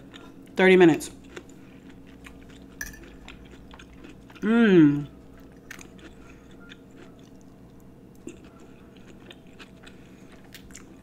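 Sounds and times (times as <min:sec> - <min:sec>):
person chewing with mouth clicks: 0:01.2 - 0:11.0.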